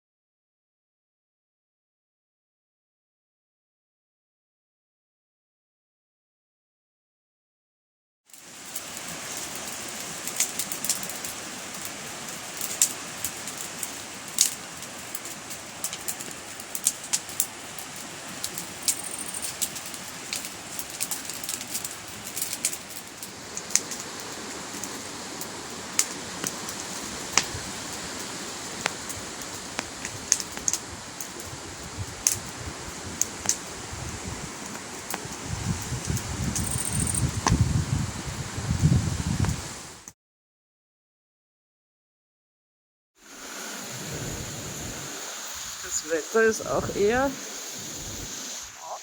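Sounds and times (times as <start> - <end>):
wood fire crackling and popping: 8.3 - 37.7
steady rushing noise: 43.3 - 49.0.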